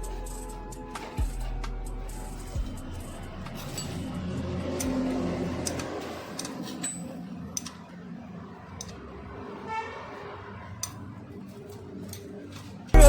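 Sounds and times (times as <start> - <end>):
metallic tool clicks: 4.8 - 5.0, 5.6 - 7.8.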